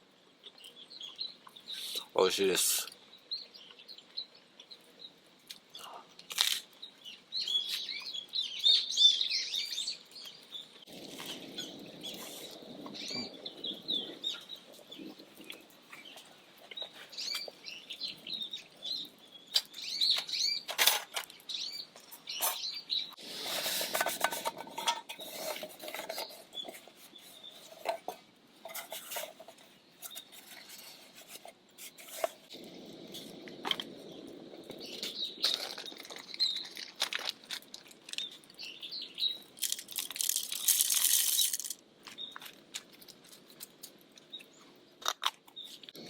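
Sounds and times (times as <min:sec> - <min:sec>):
small birds chirping: 0:00.0 - 0:46.0
rustling: 0:39.5 - 0:44.0.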